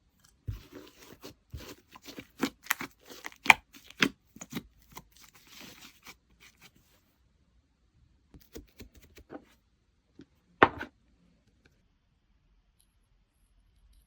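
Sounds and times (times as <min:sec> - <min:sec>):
slime squishing: 0:00.5 - 0:06.7.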